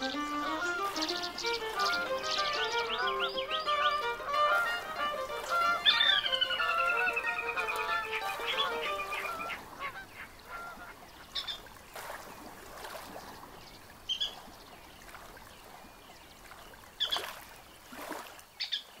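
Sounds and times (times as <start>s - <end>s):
music: 0.0s - 9.6s
short bird calls: 0.0s - 11.7s.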